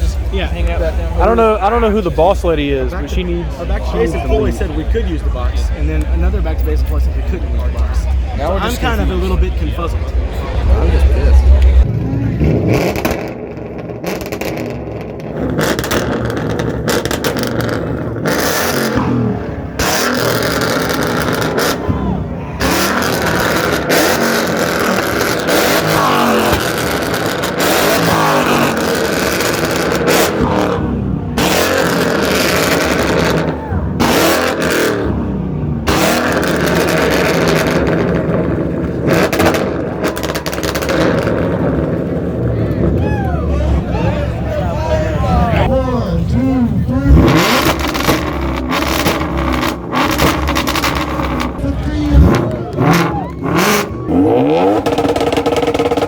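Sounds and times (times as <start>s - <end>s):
car engines revving: 0.0s - 56.0s
loud bursts of noise: 7.1s - 42.7s, 47.1s - 56.0s.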